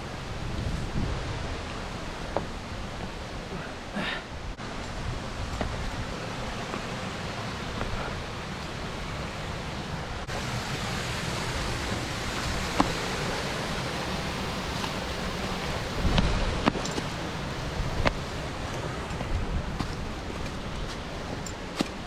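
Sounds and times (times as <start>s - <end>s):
mountain stream rushing: 0.0s - 22.0s.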